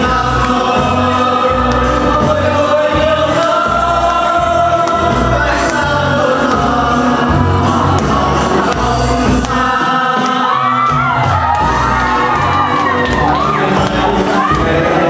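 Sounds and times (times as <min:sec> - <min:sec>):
singing in long held notes: 0:00.0 - 0:15.0.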